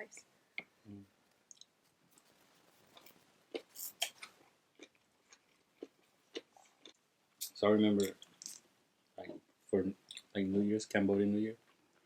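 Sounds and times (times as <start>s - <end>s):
people chewing food: 1.4s - 8.6s
wet mouth clicks: 3.6s - 4.4s.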